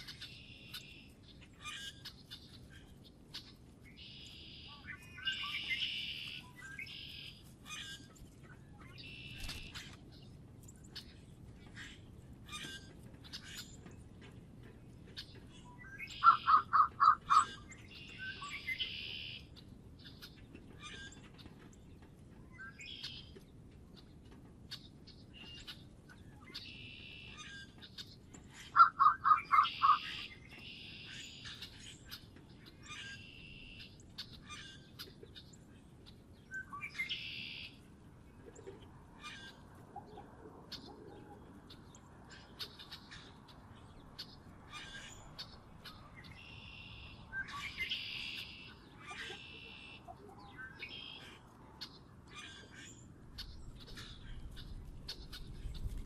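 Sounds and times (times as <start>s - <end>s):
songbirds chirping: 0.0s - 56.0s
bird harsh buzzy calls: 16.1s - 17.7s, 28.7s - 31.5s.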